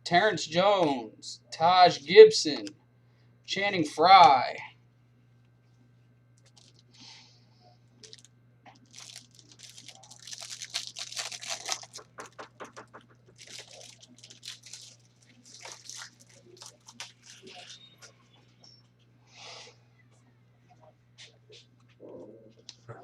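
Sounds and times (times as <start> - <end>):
card packaging crinkling: 6.4 - 6.8, 8.0 - 17.8.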